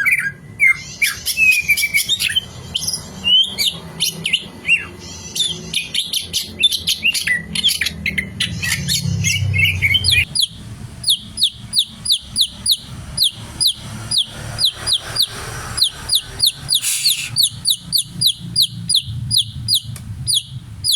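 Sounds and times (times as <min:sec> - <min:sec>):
bird singing: 0:00.0 - 0:20.9.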